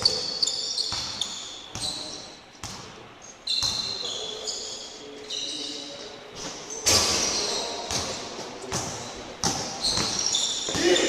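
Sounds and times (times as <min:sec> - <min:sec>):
sneakers squeaking: 0:00.0 - 0:11.0.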